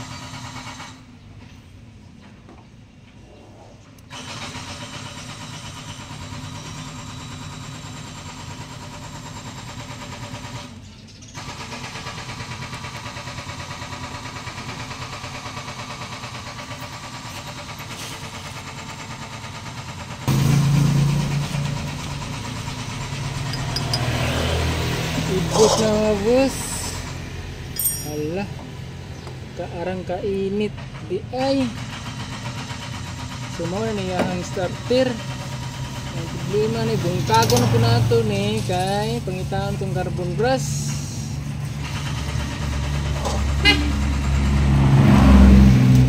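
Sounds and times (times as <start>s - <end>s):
motorcycle electric starter cranking: 4.0s - 28.4s.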